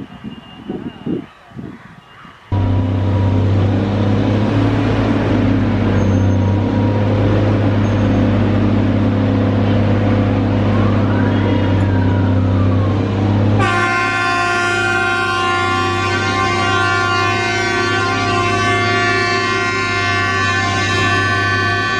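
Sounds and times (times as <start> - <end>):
express train rumbling past: 0.0 - 21.9
sustained horn chord: 2.5 - 10.7, 12.9 - 21.9.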